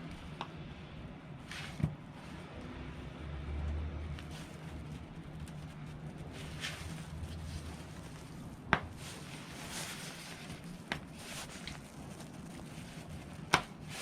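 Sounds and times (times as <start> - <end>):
light rustling: 4.1 - 14.0.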